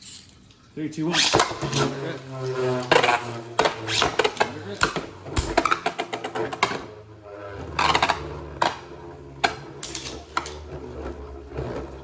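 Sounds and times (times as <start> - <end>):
whirring hum: 0.4 - 12.0
spinning tops clicking and knocking: 1.1 - 6.9, 7.8 - 10.7.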